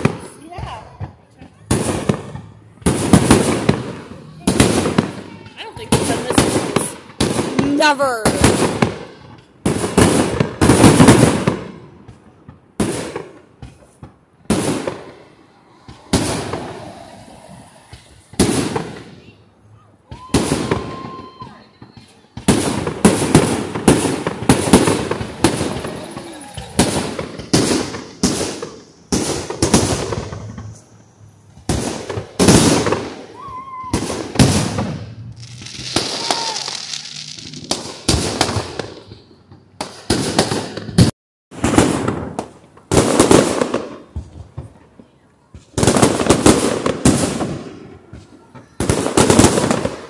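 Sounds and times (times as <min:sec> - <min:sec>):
fireworks bursting: 0:00.0 - 0:50.0
firework hiss: 0:12.8 - 0:19.3, 0:22.4 - 0:39.2.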